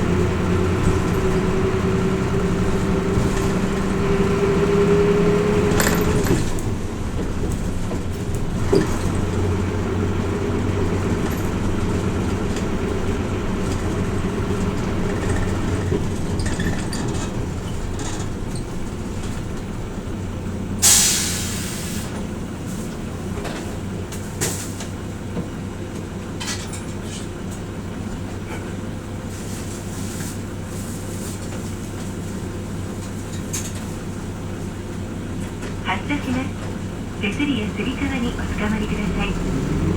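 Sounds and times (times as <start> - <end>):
bus diesel engine droning: 0.0 - 39.9
air brake hiss: 20.8 - 22.2.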